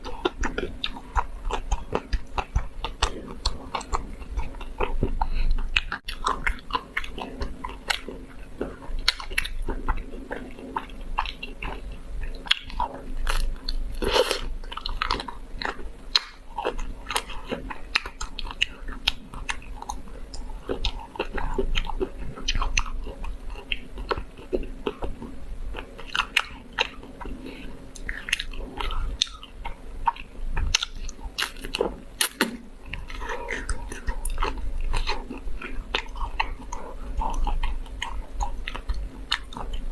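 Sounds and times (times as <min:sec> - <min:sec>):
wet chewing: 0:00.0 - 0:39.9
crackling bites of ice cream: 0:30.8 - 0:34.0.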